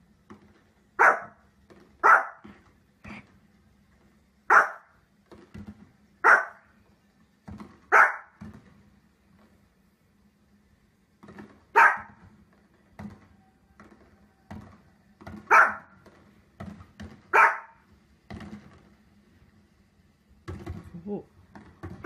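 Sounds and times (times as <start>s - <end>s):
small dog barking: 1.0s - 1.4s, 2.0s - 2.5s, 4.5s - 4.9s, 6.2s - 6.6s, 7.9s - 8.4s, 11.7s - 12.2s, 15.5s - 15.9s, 17.3s - 17.8s.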